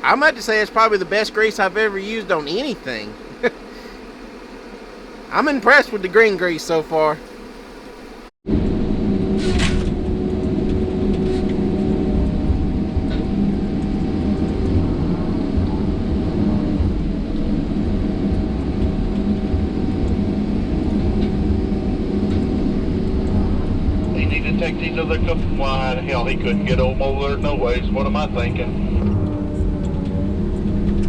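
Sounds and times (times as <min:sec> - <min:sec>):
diesel engine running under load: 0:08.6 - 0:31.0.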